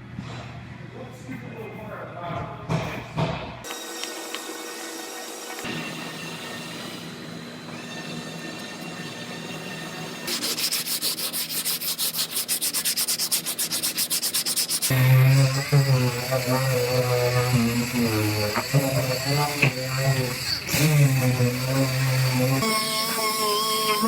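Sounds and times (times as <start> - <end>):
droning power tool: 3.7 - 11.0, 14.8 - 24.0
sanding metal panel: 10.3 - 24.0.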